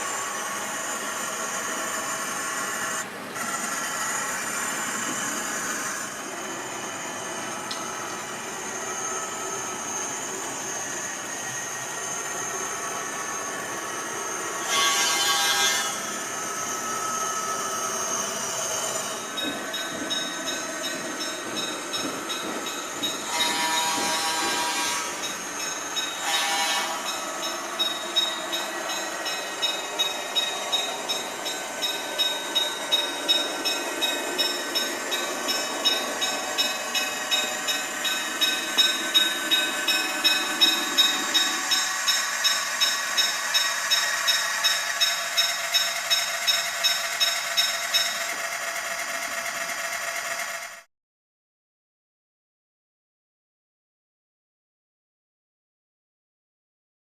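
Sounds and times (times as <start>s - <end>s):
model locomotive diesel engine sound: 0.0s - 50.9s
wheels clicking over rail joints: 7.3s - 50.8s
locomotive horn blasts: 14.6s - 16.1s, 23.3s - 25.3s, 26.2s - 27.2s.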